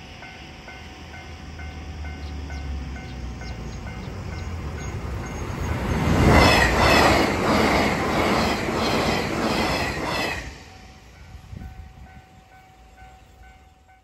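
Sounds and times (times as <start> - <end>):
level crossing warning bell: 0.0 - 5.6, 10.7 - 14.0
train wheels clattering: 1.6 - 10.7.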